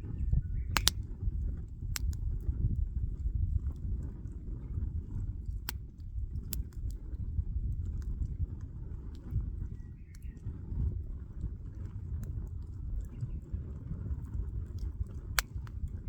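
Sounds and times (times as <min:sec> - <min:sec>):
wood fire crackling and popping: 0:00.7 - 0:02.6, 0:05.0 - 0:16.0.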